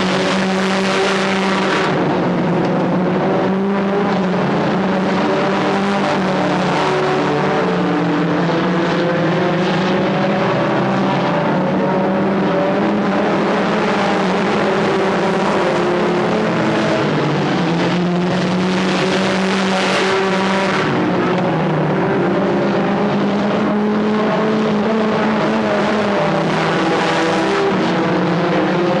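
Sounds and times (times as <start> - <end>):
race car engines: 0.0 - 29.0.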